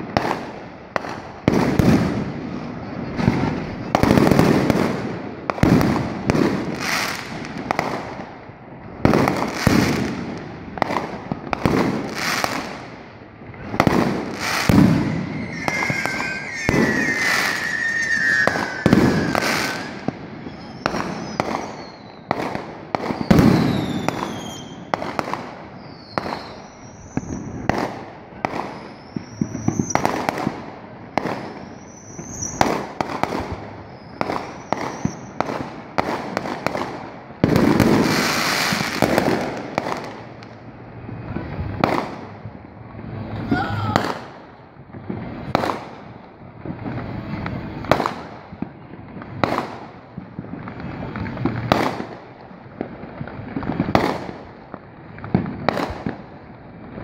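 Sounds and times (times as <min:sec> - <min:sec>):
firework crackling: 0:00.0 - 0:57.0
fireworks bangs: 0:00.0 - 0:57.0
whistling firework shells: 0:13.6 - 0:25.1, 0:25.7 - 0:30.5, 0:31.1 - 0:35.7.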